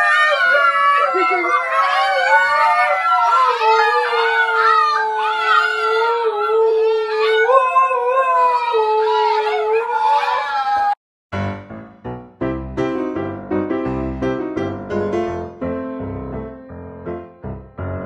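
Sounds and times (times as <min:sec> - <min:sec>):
higher wavering puppy howls: 0:00.0 - 0:11.0
low dog howl: 0:00.0 - 0:11.0.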